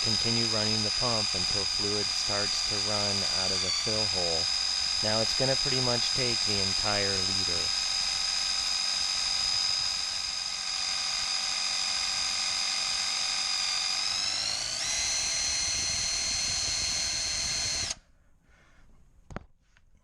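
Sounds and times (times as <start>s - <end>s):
power tool whining: 0.0s - 18.0s.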